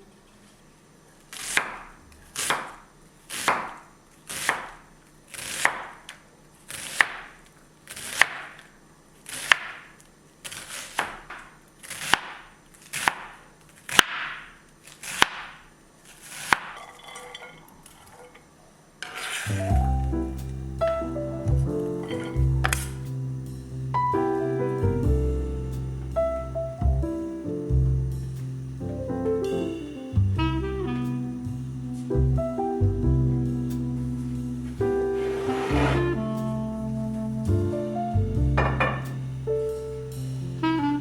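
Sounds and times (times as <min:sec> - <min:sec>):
knife slicing onto cutting board: 0:35.2 - 0:36.2.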